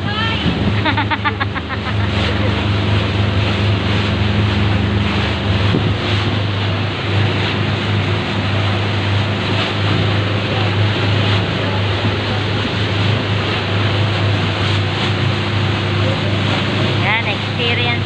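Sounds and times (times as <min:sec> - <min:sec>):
wind noise on microphone: 0:00.0 - 0:01.0, 0:03.8 - 0:07.5
boat engine humming: 0:00.0 - 0:18.0
water rushing: 0:00.0 - 0:18.0.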